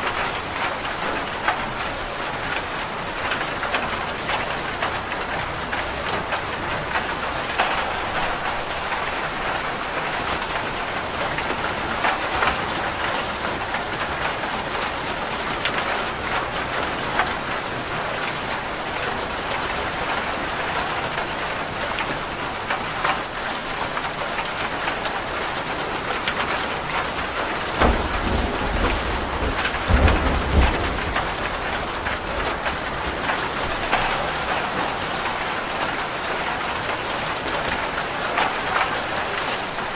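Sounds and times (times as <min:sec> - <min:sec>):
rain falling on a roof: 0:00.0 - 0:39.9
thunder rumbling: 0:27.2 - 0:34.6.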